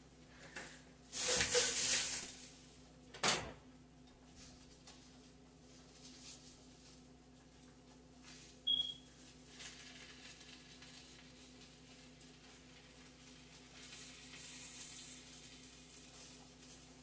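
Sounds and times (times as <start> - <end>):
food sizzling in a wok: 1.1 - 2.7, 9.3 - 17.0.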